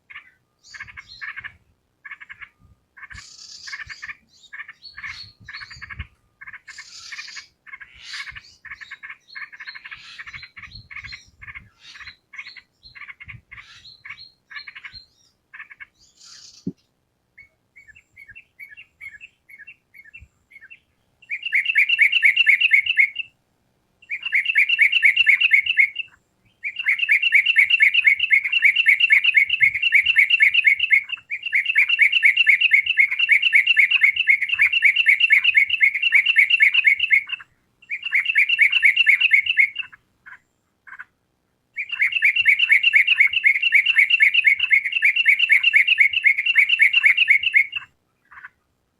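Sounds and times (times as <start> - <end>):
bulbul singing: 24.0 - 40.0, 41.8 - 48.5.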